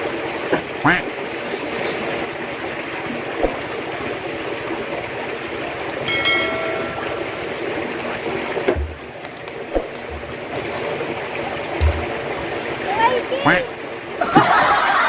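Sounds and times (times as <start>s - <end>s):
rushing running water: 0.0s - 15.0s
high ringing tone: 6.0s - 7.8s
dull low thumps: 8.8s - 9.1s, 11.7s - 12.3s.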